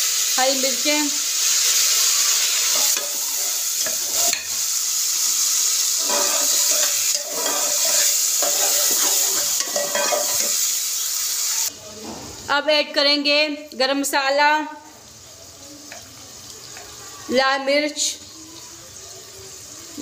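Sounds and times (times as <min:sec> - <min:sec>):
vegetables sizzling in ghee: 0:00.0 - 0:20.0
metal turner scraping a pot: 0:02.4 - 0:04.5, 0:05.8 - 0:10.7.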